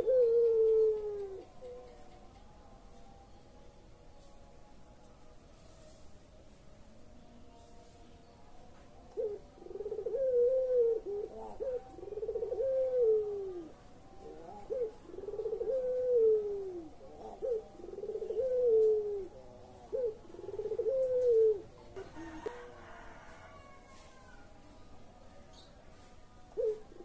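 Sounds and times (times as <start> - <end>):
dove cooing: 0.0 - 2.0, 9.1 - 23.0, 26.5 - 27.0.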